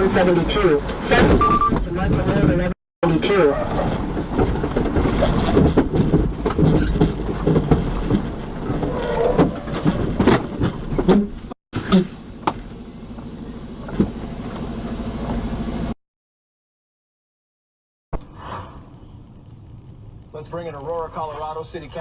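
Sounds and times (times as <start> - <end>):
vehicle rumble: 0.0 - 16.0, 18.2 - 22.0
knocks and clatter: 3.8 - 15.5.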